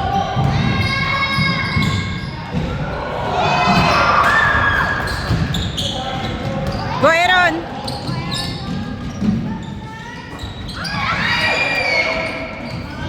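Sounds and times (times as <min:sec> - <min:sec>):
voices in a hall: 0:00.0 - 0:13.0
shoe squeaks: 0:00.8 - 0:02.6, 0:04.9 - 0:13.0.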